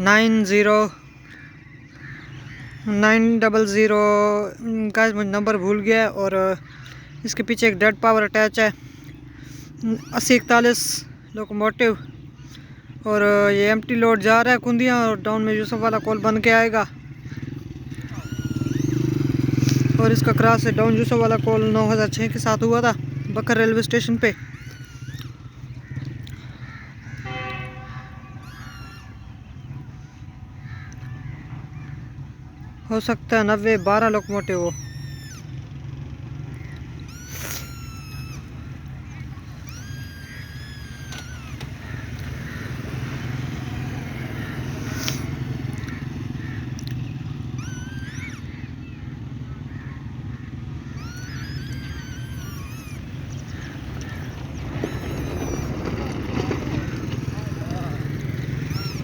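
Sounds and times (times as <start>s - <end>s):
crows cawing: 0.0s - 3.8s, 6.5s - 7.6s, 8.7s - 11.4s, 12.0s - 13.4s, 14.7s - 32.4s, 33.5s - 59.0s
high bird twittering: 0.0s - 59.0s
locomotive engine rumbling: 0.0s - 59.0s
small birds chirping: 0.0s - 59.0s
high wavering chirps: 17.8s - 20.1s, 33.8s - 35.8s, 37.0s - 41.6s, 47.4s - 48.5s, 50.9s - 55.8s, 58.4s - 59.0s.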